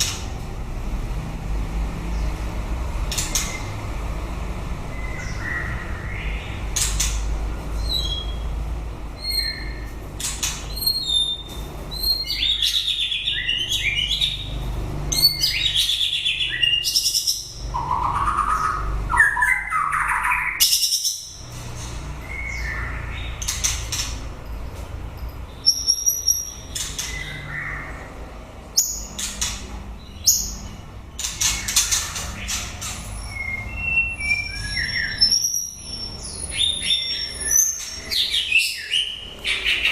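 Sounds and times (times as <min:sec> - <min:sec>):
bird singing whistled phrases: 0:33.2 - 0:39.2.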